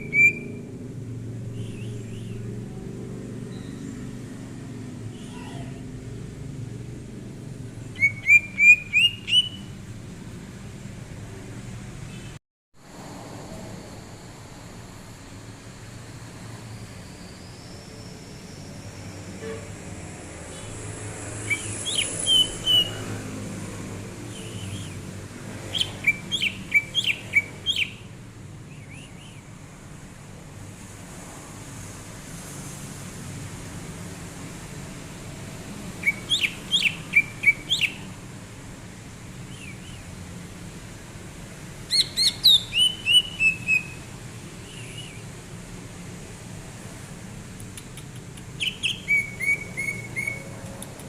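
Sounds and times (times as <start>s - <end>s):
bird calling upslurred notes: 0.0s - 0.7s, 8.0s - 9.7s, 21.5s - 23.0s, 25.7s - 28.1s, 36.0s - 38.2s, 41.9s - 45.3s, 48.5s - 50.6s.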